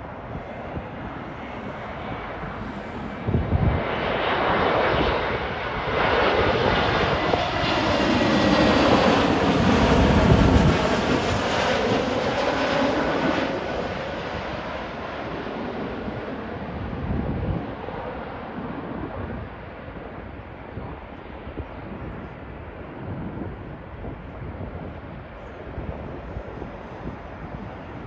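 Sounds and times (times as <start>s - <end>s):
airliner engine noise: 0.0s - 28.0s
wind buffeting microphone: 0.0s - 28.0s.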